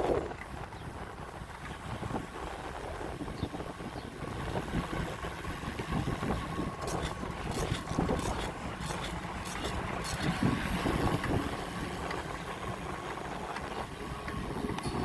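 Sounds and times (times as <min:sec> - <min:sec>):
low road rumble: 0:00.0 - 0:15.0
wind buffeting microphone: 0:00.0 - 0:15.0
sharp clicks or rattles: 0:06.8 - 0:10.5.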